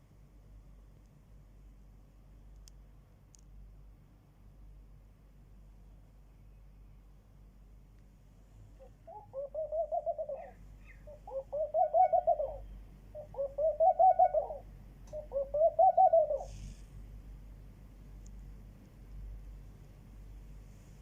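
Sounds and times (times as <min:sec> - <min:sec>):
dove cooing: 0:08.8 - 0:16.8.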